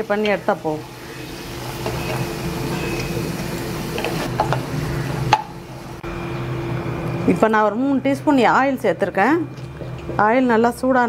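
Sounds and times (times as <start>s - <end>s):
food sizzling in butter and oil: 0.0s - 6.0s
steady hum: 0.0s - 11.0s.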